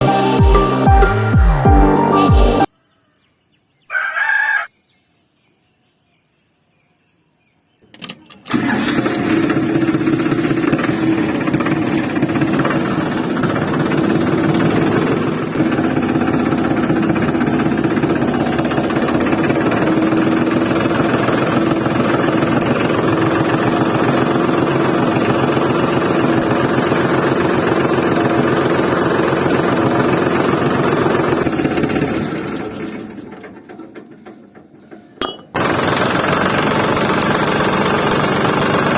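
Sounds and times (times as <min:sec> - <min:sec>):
small diesel engine running: 0:08.0 - 0:38.9.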